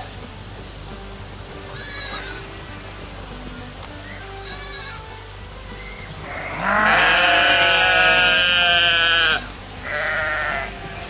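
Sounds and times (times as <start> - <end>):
sheep bleating: 1.7 - 5.2, 5.8 - 11.0.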